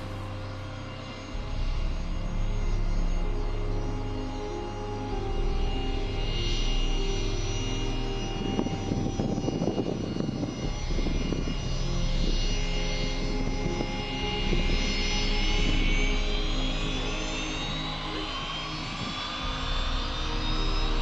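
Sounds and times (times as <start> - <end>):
jet engine whine: 15.7 - 21.0.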